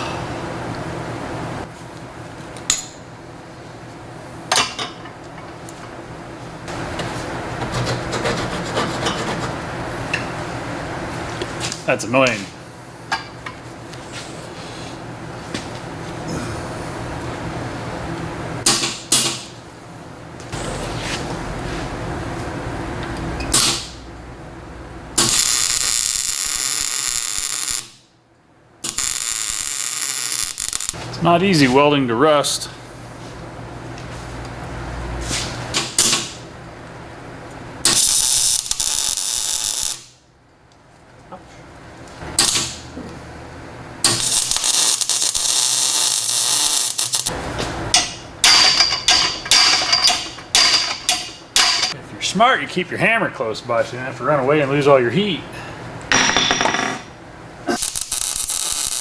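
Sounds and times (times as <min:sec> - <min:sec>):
welding arc sizzling: 0:25.1 - 0:28.1, 0:28.8 - 0:31.7, 0:37.8 - 0:40.2, 0:44.0 - 0:52.0, 0:57.7 - 0:59.0.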